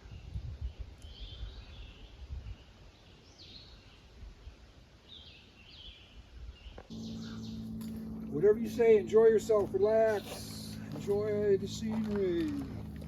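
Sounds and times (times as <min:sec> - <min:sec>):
faint bird calls: 0:06.7 - 0:07.8
low uneven rumble: 0:06.9 - 0:13.0.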